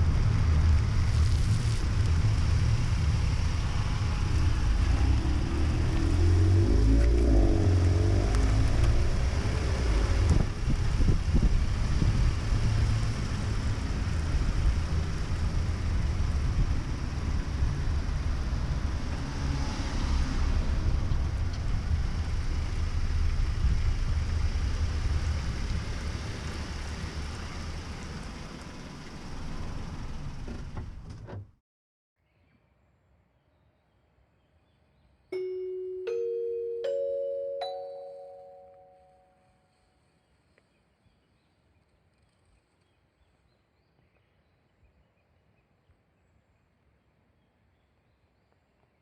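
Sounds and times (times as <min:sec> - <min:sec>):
rain and wet tyres hissing: 0:00.0 - 0:18.6, 0:21.6 - 0:30.9
road and engine rumble: 0:00.0 - 0:31.5.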